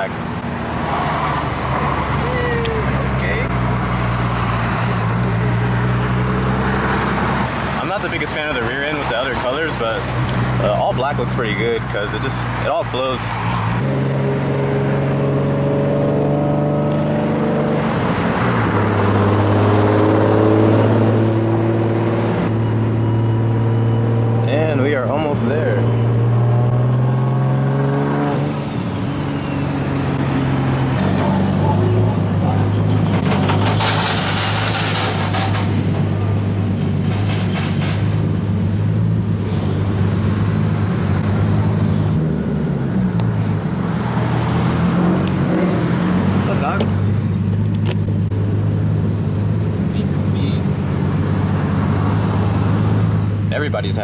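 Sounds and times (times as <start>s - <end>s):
car engine droning while driving: 12.4s - 35.1s.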